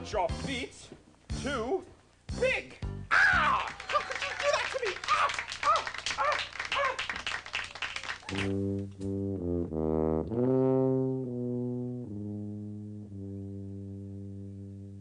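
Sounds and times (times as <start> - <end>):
person shouting: 3.1 - 7.0
low brass instrument playing: 8.3 - 15.0.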